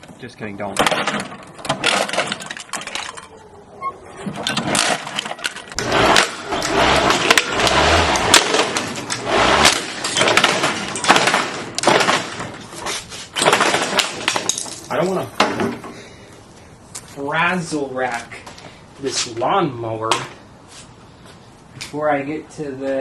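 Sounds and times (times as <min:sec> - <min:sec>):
lawnmower shredding plastic toy: 0:04.4 - 0:14.6.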